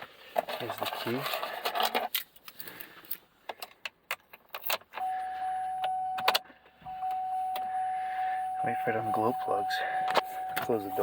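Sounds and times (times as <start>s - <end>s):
high dashboard warning chime: 5.0s - 11.0s.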